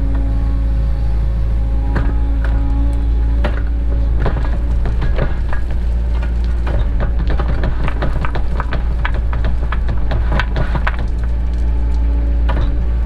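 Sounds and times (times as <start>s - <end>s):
excavator engine running: 0.0s - 13.0s
bucket knocks and clatter: 3.5s - 11.4s.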